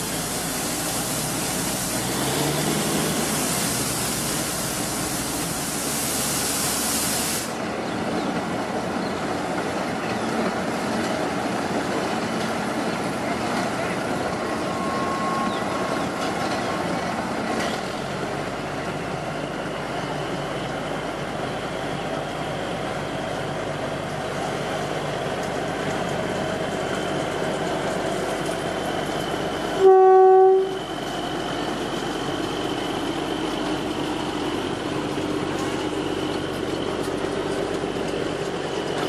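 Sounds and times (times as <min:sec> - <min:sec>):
train rumbling: 0:00.0 - 0:39.0
train horn: 0:14.7 - 0:15.6, 0:29.8 - 0:30.9.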